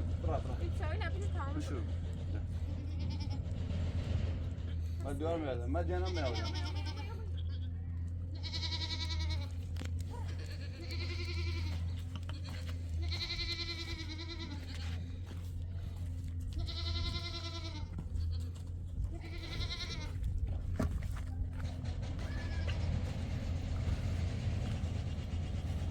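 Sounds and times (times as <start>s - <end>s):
low hum: 0.0s - 25.9s
goat bleating: 2.4s - 3.6s, 5.8s - 20.6s, 21.5s - 23.3s.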